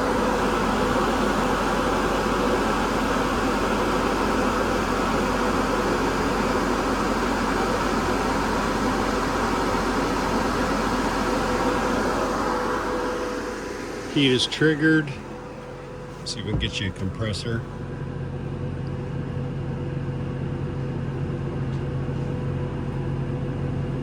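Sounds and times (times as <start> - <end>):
air conditioner fan blowing: 0.0 - 24.0
faint hum: 8.9 - 24.0.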